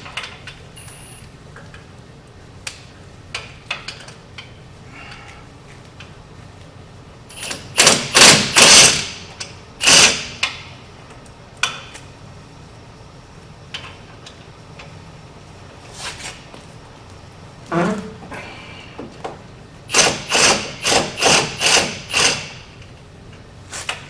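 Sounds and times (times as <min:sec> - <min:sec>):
power tool bursts on truck wheel: 0:07.3 - 0:10.6, 0:19.9 - 0:22.7.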